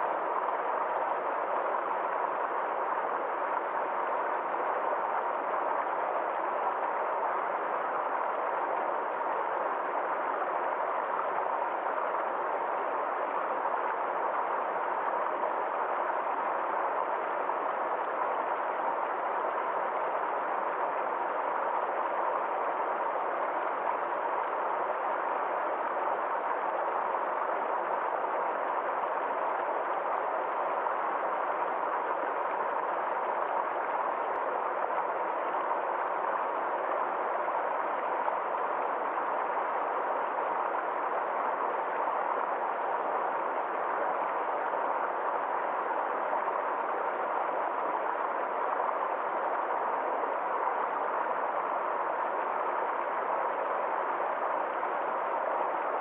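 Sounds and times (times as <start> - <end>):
stream flowing over rocks: 0.0 - 56.0.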